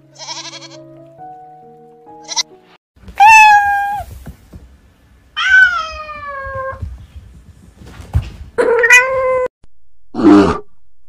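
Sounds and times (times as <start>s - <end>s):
cat meowing: 0.2s - 0.8s, 2.2s - 2.4s, 3.2s - 4.1s, 5.4s - 6.8s, 8.6s - 9.5s.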